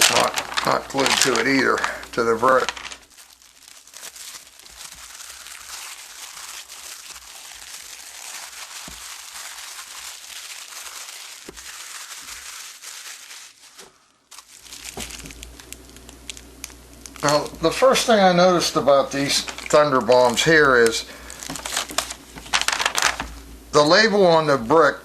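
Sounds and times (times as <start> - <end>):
cellophane wrapper crinkling: 0.0 - 24.2.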